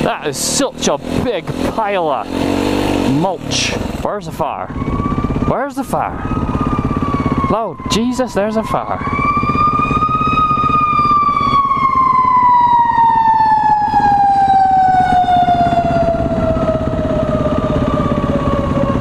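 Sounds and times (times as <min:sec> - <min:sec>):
motorcycle engine running: 0:00.0 - 0:19.0
fire engine siren: 0:04.4 - 0:19.0.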